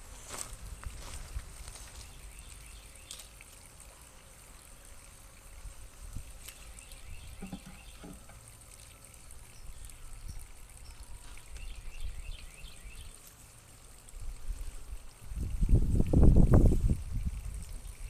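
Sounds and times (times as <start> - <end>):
wind rumbling on microphone: 14.2 - 18.0.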